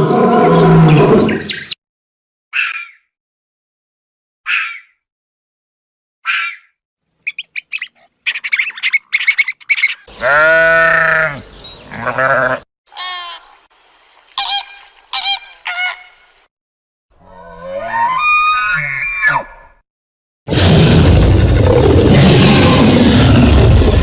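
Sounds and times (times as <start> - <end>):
animal calls: 6.3 - 13.4.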